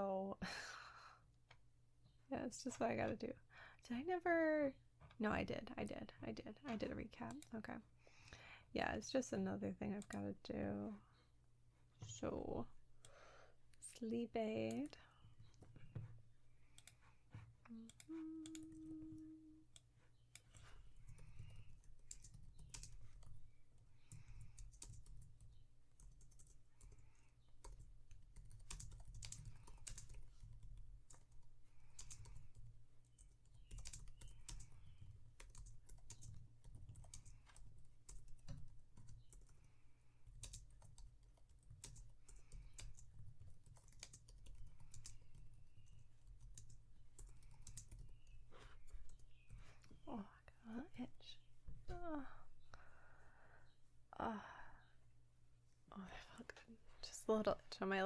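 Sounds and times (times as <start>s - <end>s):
low steady background hum: 0.0s - 58.0s
typing on computer keyboard: 19.8s - 23.4s, 24.1s - 48.4s.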